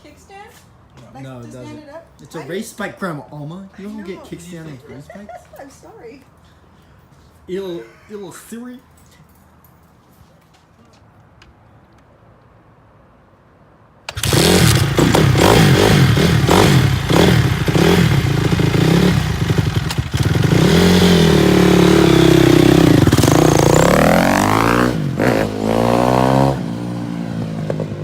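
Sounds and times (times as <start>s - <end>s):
dirt bike engine revving: 14.1s - 27.9s.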